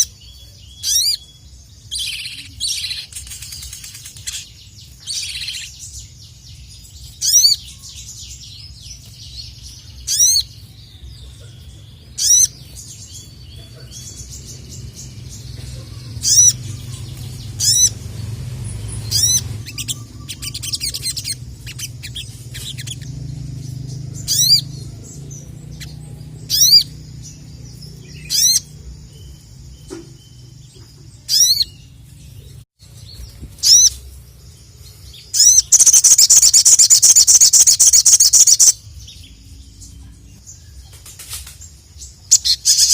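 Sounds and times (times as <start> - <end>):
sunbird piercing high call: 0.0 - 3.1
soft bird twittering: 0.0 - 42.9.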